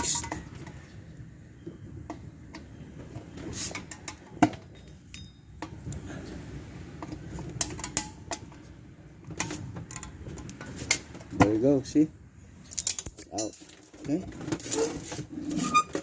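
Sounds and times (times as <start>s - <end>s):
pliers clinking on metal spring: 3.8s - 5.6s, 12.7s - 13.8s.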